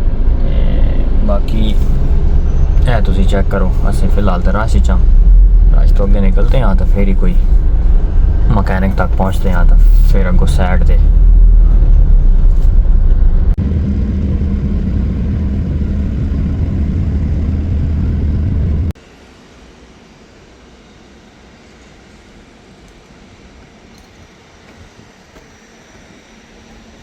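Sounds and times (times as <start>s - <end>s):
vehicle road and engine rumble: 0.0s - 19.0s.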